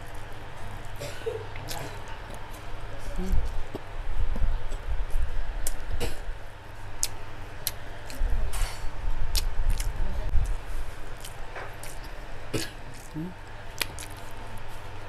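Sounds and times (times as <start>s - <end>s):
close-up chewing: 0.1s - 3.9s, 9.3s - 15.0s
mouth clicks and smacks: 9.3s - 10.6s, 11.2s - 14.3s.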